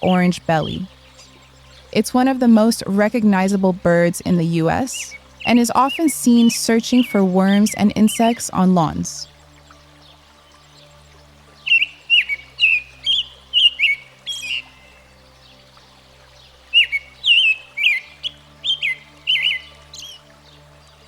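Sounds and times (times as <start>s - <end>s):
robin whistling song: 0.0s - 21.0s.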